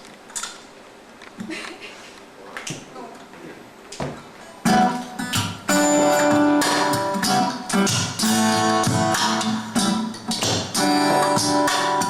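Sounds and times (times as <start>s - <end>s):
guitar strumming chords: 4.6s - 12.0s.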